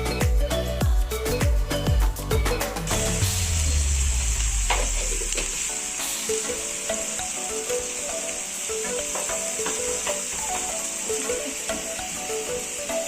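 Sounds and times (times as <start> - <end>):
food sizzling in oil: 1.2 - 13.0
spoon knocking pan: 8.7 - 10.9.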